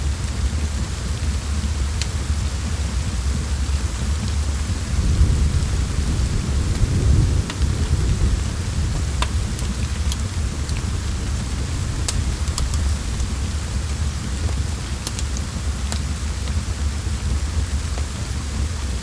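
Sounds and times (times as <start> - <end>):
steady rain: 0.0 - 19.0
wood fire crackling: 0.2 - 19.0
low rumble: 4.6 - 15.6.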